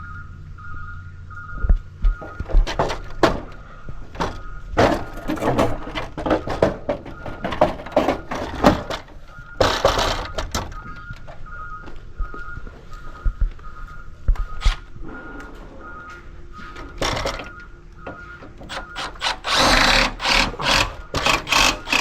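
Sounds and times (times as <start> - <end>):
repeating electronic beep: 0.0 - 2.6, 9.3 - 22.0
construction knocks and clatter: 1.6 - 12.7, 15.4 - 22.0.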